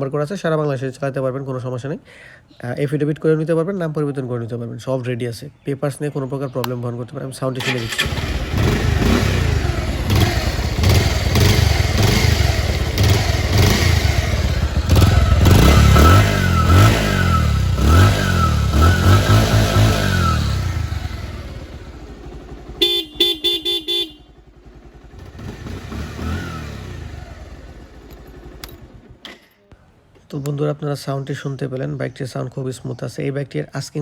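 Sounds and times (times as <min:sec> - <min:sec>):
motorcycle engine revving: 0:07.6 - 0:29.2
horn short toots: 0:22.8 - 0:24.4.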